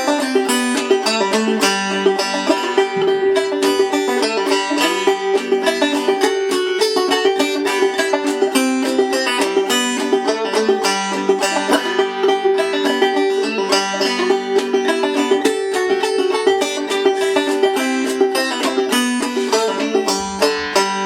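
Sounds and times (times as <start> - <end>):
banjo plucked notes: 0.0 - 21.0.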